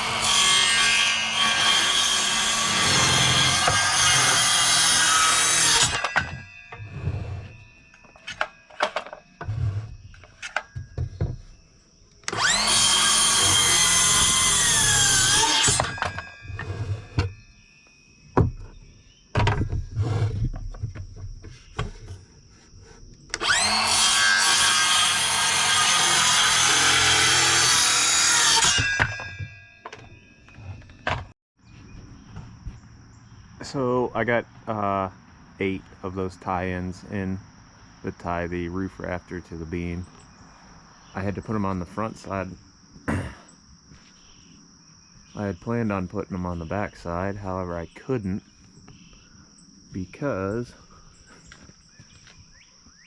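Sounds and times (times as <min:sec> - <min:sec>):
power saw cutting wood: 0:00.0 - 0:07.6, 0:12.2 - 0:17.3, 0:23.3 - 0:29.4
boards knocking and clattering: 0:10.2 - 0:11.6, 0:18.4 - 0:22.2, 0:28.7 - 0:31.3.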